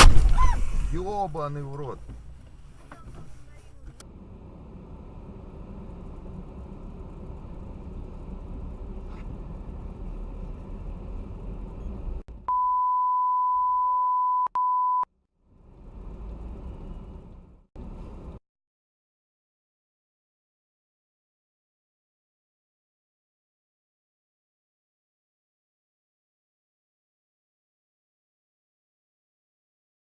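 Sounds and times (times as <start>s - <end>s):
vehicle road and engine rumble: 0.0s - 13.0s, 15.2s - 18.4s
high single-pitch bleep: 12.5s - 15.1s.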